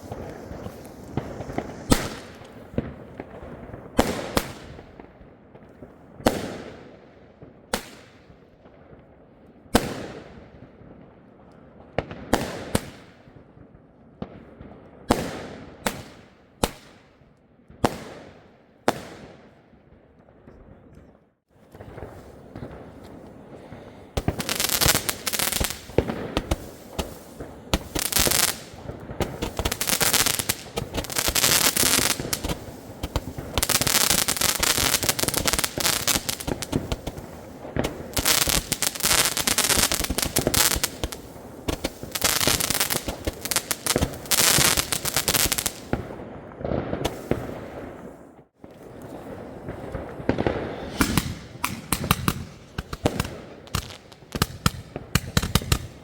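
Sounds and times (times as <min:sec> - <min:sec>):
rapid firework pops: 0:00.0 - 0:05.0, 0:21.7 - 0:56.0
fireworks launching and bursting: 0:00.0 - 0:06.9, 0:15.0 - 0:17.2, 0:21.6 - 0:56.0.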